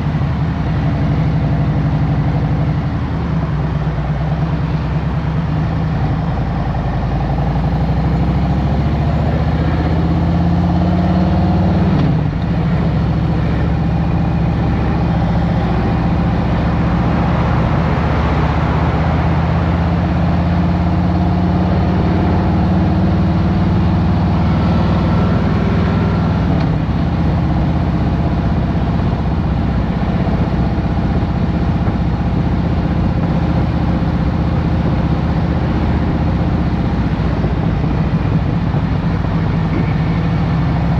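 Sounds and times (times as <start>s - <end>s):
motorcycle engine running: 0.0s - 40.9s
wind noise: 35.6s - 40.9s.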